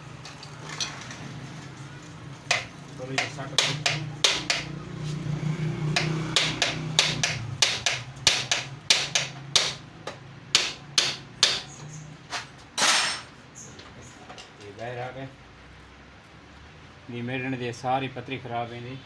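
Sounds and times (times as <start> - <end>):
hammer on metal: 2.5 - 4.8, 5.9 - 11.7.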